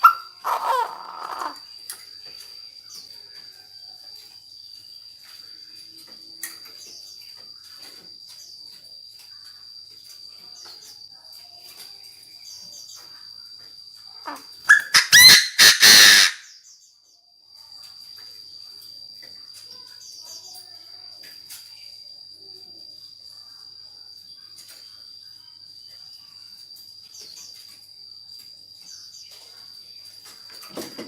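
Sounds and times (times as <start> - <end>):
bird harsh rapid call: 0.0 - 1.6, 14.3 - 16.5
faint chirps: 0.0 - 31.0
high insect drone: 0.0 - 31.0.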